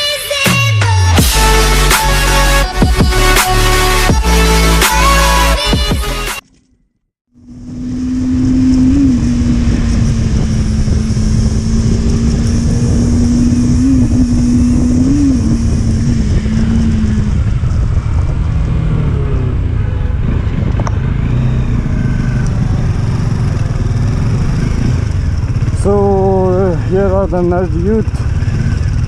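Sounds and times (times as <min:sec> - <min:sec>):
motorcycle engine cruising: 0:00.9 - 0:29.0
wind and road noise: 0:06.4 - 0:29.0.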